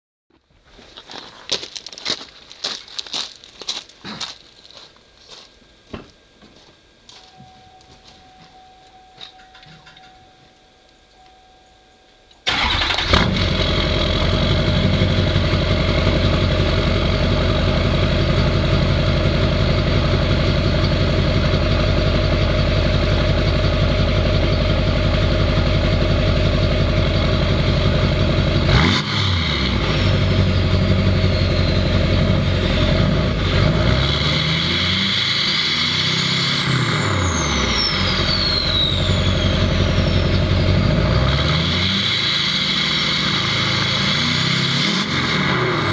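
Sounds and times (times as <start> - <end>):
diesel truck engine idling and revving: 12.5 - 45.9
high turbo whistle: 30.0 - 32.4, 34.6 - 45.1.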